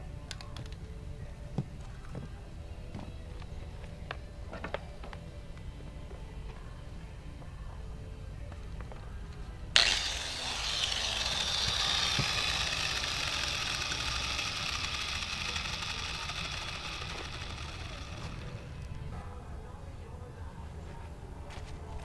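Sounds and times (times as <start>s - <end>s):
rotary tool grinding wood: 9.8s - 19.1s.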